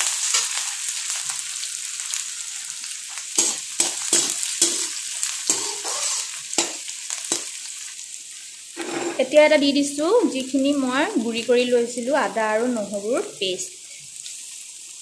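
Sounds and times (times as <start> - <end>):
food sizzling in hot oil: 0.0 - 15.0
metal spatula scraping pan: 3.4 - 7.5, 8.8 - 9.4.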